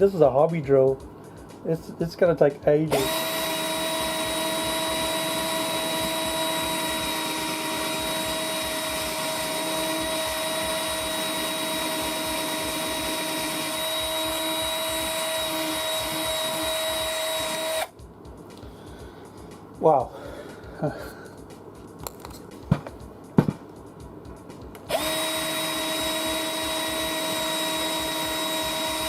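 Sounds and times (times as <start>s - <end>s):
drill whining into plastic: 2.9s - 17.9s, 24.9s - 29.0s.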